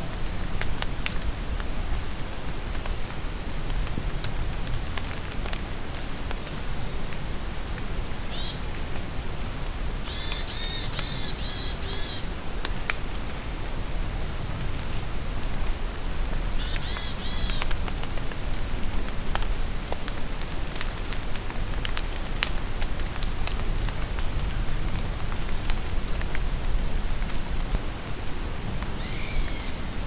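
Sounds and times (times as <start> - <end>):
raindrops tapping: 0.0 - 8.0, 14.4 - 29.7
rain falling in a forest: 0.0 - 30.0.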